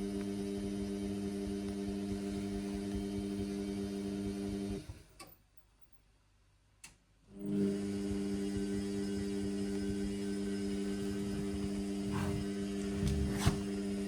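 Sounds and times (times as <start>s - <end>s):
washing machine motor humming: 7.4s - 14.0s.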